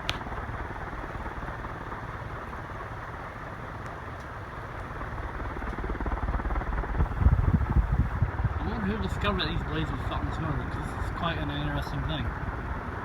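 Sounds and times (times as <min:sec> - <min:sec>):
ceiling fan rushing air: 0:00.0 - 0:13.0
wind on microphone: 0:05.4 - 0:11.4.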